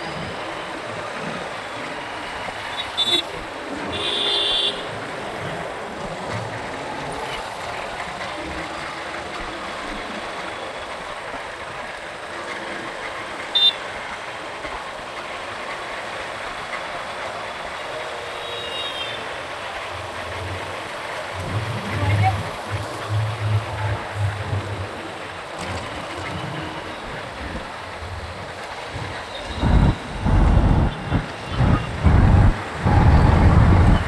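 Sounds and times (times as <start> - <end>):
motorcycle wind and road noise: 21.4 - 34.0.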